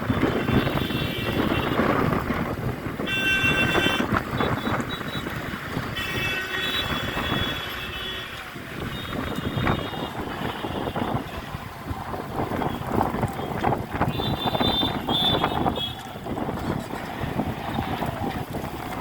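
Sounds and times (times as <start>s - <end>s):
road traffic rumbling: 0.0s - 19.0s
vehicle horn blasts: 0.2s - 1.9s, 3.0s - 5.2s, 5.9s - 11.3s, 14.1s - 16.0s.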